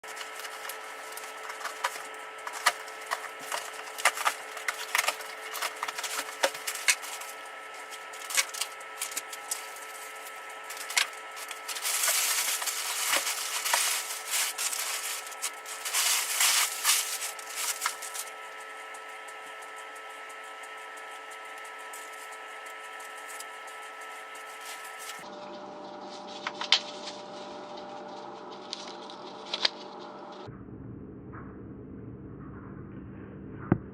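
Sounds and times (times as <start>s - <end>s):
packaging rustling: 0.0s - 25.2s
steady background hum: 0.0s - 33.9s
packaging clicks and knocks: 0.1s - 7.3s.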